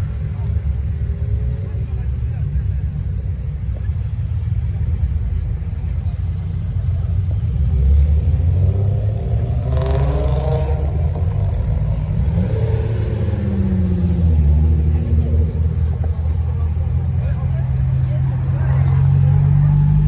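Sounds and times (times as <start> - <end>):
car exhaust rumble: 0.0 - 20.0
car engine revving: 6.6 - 20.0.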